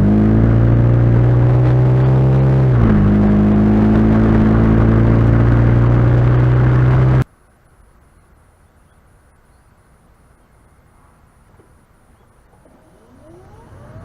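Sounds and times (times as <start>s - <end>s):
car engine droning: 0.0s - 7.2s, 12.4s - 14.0s.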